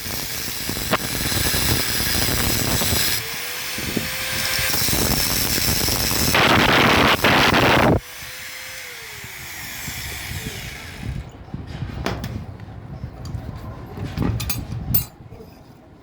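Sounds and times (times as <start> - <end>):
power tool whining: 0.0 - 11.4.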